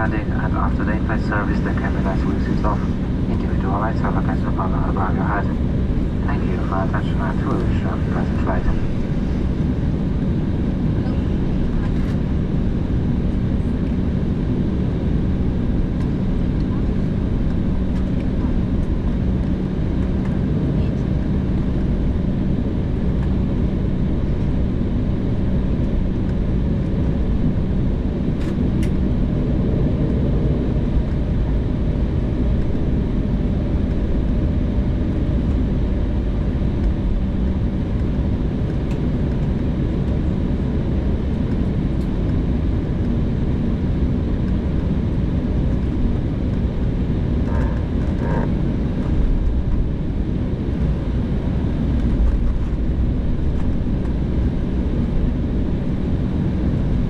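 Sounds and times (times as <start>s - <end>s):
constant hum: 0.0s - 57.0s
jet engines rumbling in cabin: 0.0s - 57.0s.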